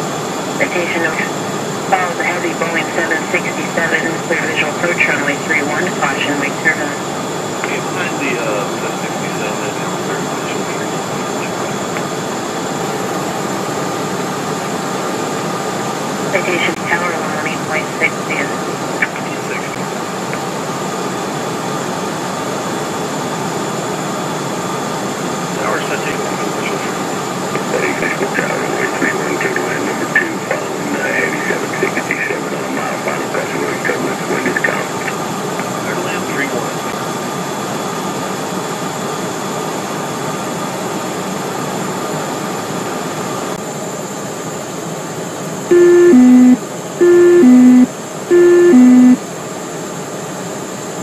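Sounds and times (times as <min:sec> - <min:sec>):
jet engines in cockpit: 0:00.0 - 0:46.4
faint high whine: 0:00.6 - 0:12.3, 0:45.7 - 0:49.2
two-tone alert chime: 0:45.7 - 0:49.2.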